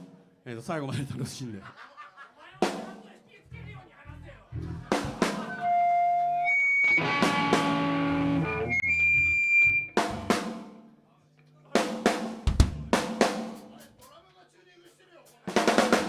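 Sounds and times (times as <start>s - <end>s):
electric guitar chord ringing: 5.6s - 9.4s
drum hits: 12.1s - 13.6s.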